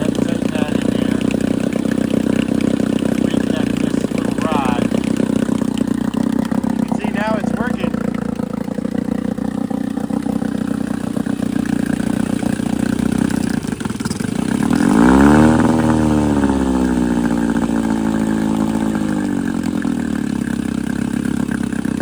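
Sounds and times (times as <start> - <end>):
outboard motor revving: 0.0 - 22.0.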